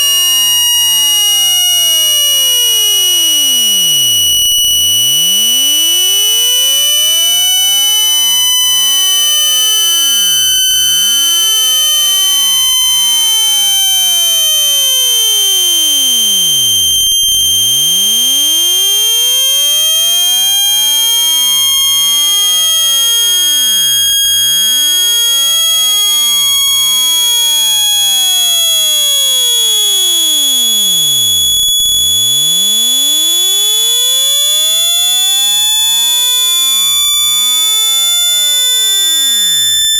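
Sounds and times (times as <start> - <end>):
high-pitched electronic beep: 0.0 - 19.1, 28.2 - 39.9.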